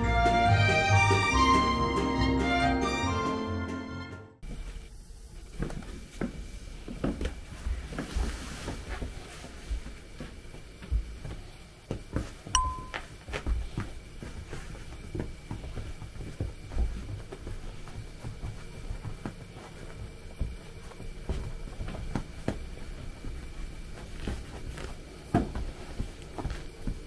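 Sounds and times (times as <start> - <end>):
bell-like ding: 12.6 - 13.0.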